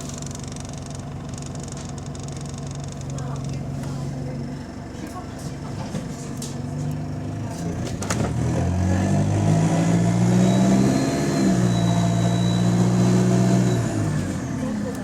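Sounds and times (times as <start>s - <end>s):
bus diesel engine pulling away: 3.2s - 15.0s.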